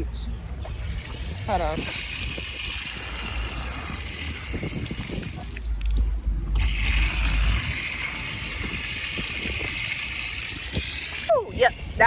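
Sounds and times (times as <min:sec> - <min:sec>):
shower water running: 0:01.8 - 0:11.3.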